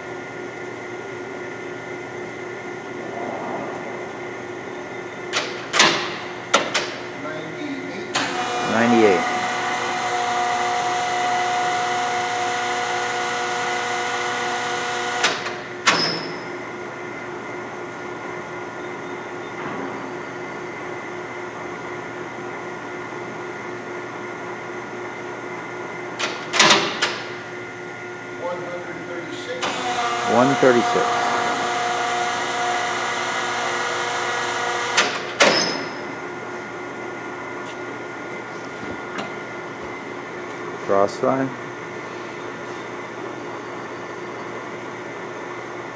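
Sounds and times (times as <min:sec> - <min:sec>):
lathe gearing whine: 0:08.0 - 0:19.6, 0:27.4 - 0:45.9
lathe running: 0:08.1 - 0:15.8, 0:29.6 - 0:35.3.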